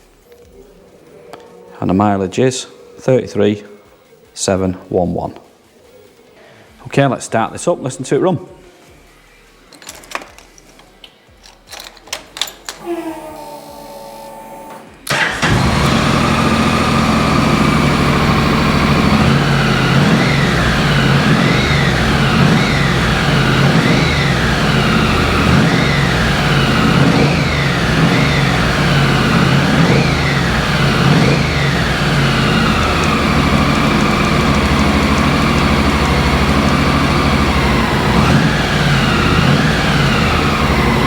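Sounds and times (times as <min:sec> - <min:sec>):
motorcycle engine starting and revving: 0:13.4 - 0:41.0.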